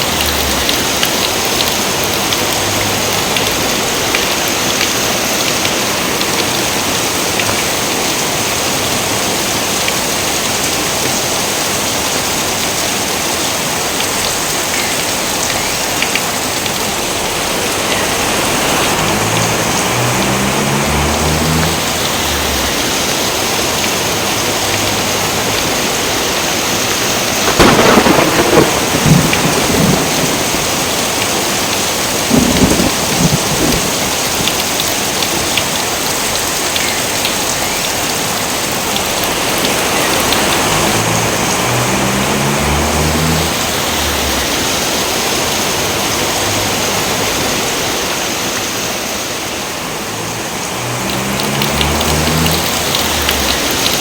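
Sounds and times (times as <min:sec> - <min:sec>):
heavy rain: 0:00.0 - 0:54.0
thunder rolling: 0:27.3 - 0:34.8.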